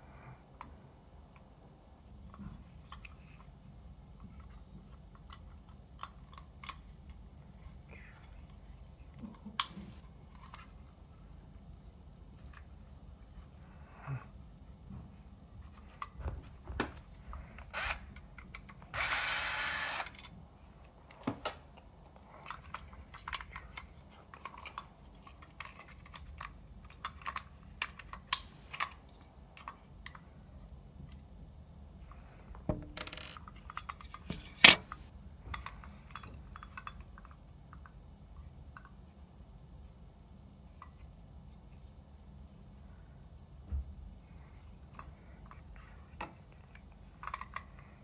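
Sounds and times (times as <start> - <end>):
tools and parts rattling: 32.7 - 37.4, 46.2 - 48.0.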